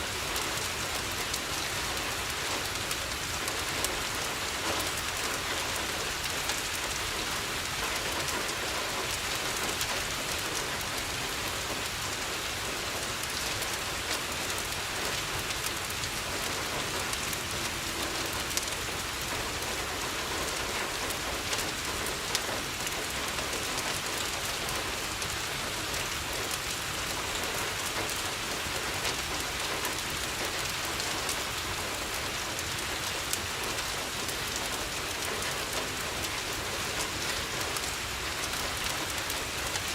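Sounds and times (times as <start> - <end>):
rain on a window: 0.0 - 39.9.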